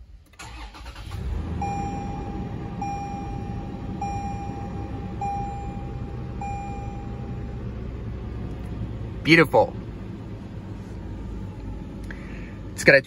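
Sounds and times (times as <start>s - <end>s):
car engine idling: 0.2s - 13.0s
dashboard chime: 1.6s - 7.6s.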